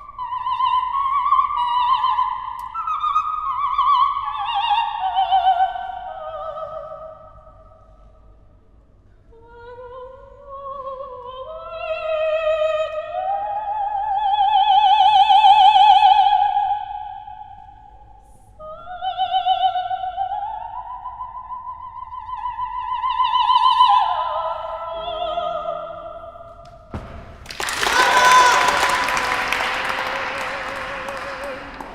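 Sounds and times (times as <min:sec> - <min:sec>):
operatic soprano singing: 0:00.0 - 0:07.5, 0:18.6 - 0:26.6, 0:28.0 - 0:31.9
applause: 0:27.0 - 0:31.9.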